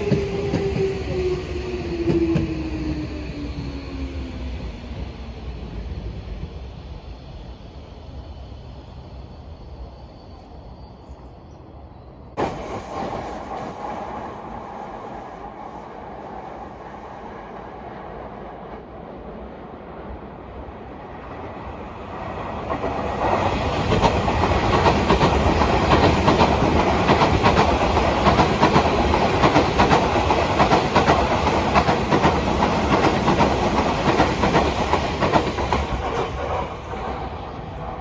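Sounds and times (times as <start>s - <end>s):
train wheels clacking on rails: 0.0s - 5.2s, 22.1s - 38.0s.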